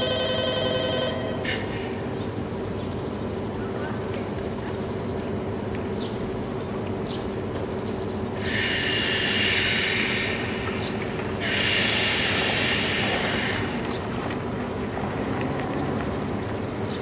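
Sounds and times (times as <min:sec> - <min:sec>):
electric train humming: 0:00.0 - 0:17.0
hissing bursts: 0:08.3 - 0:14.1.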